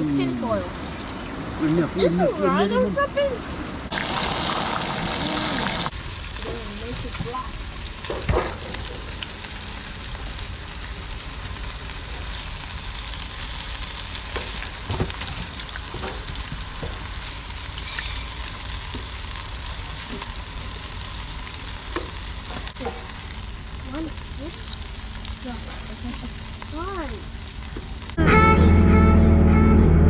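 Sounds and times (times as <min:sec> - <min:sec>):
sausages sizzling: 0:00.0 - 0:28.8.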